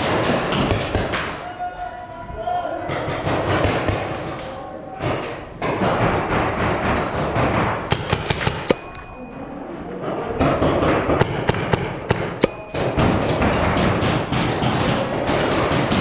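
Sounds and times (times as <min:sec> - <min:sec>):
hit ringing like metal: 0:08.7 - 0:09.9, 0:12.4 - 0:14.3.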